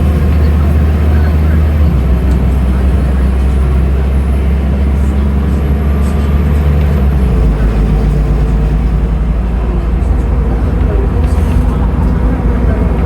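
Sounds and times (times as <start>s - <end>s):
bus diesel engine drone: 0.0s - 13.0s.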